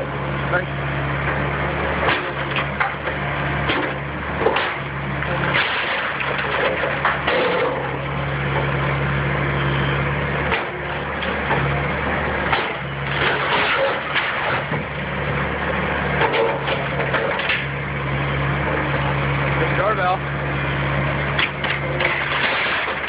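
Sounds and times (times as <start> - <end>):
heavy machine engine working: 0.0 - 23.0
wood cracking and crunching: 1.9 - 8.7, 12.4 - 17.8, 21.3 - 23.0.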